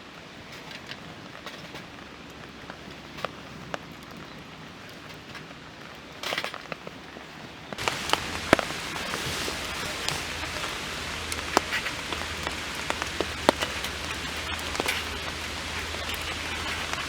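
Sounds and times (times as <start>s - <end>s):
rain pattering on a tarp: 0.0s - 17.0s.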